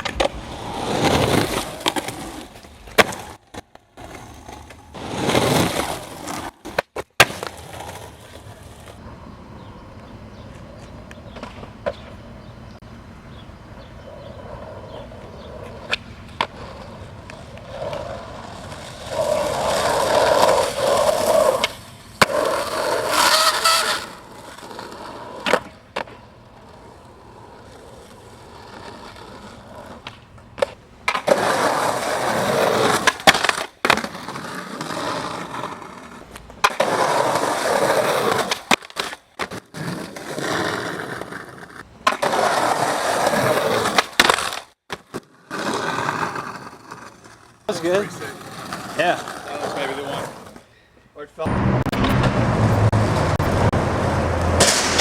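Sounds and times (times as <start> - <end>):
skateboard wheels rolling on pavement: 0.0 - 55.0
skateboard clacks: 10.0 - 12.2, 14.5 - 50.6, 53.0 - 55.0.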